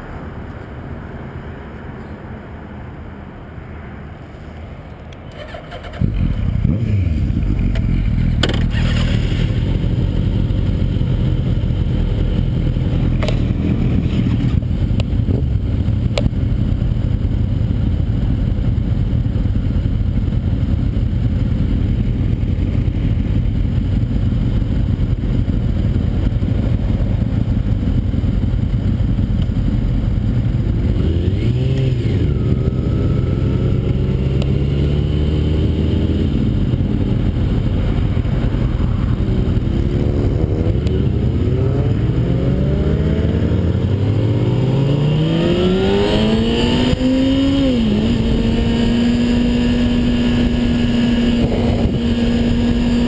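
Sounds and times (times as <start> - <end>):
motorcycle engine idling: 5.3 - 31.2
other motorcycles idling: 5.3 - 34.5
motorcycle pulling away: 5.3 - 53.0.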